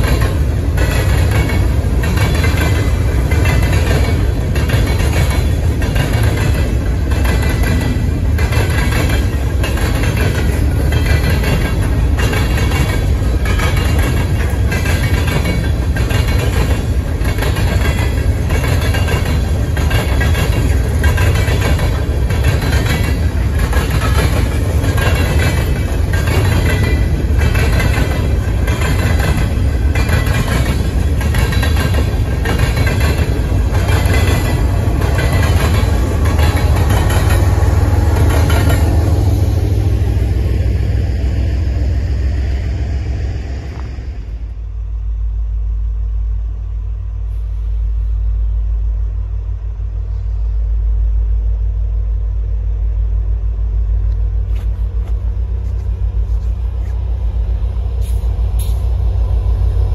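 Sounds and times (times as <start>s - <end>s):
wheels clacking over rail joints: 0.0s - 41.4s
diesel locomotive passing: 0.0s - 59.9s
freight train rumbling past: 0.0s - 59.9s.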